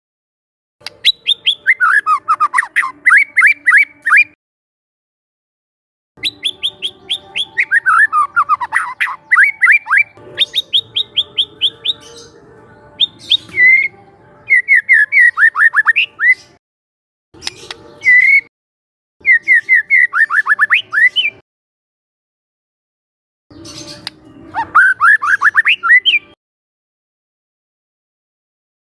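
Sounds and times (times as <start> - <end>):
bird singing whistled notes: 0.9 - 4.4, 6.2 - 16.6, 17.4 - 18.5, 19.2 - 21.4, 23.5 - 26.4.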